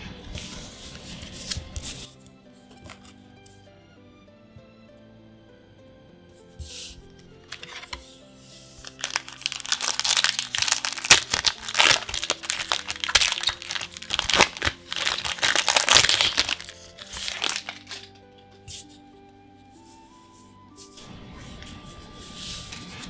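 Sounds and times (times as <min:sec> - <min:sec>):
background music: 0:00.0 - 0:23.0
foil wrapper crinkling: 0:08.6 - 0:18.2.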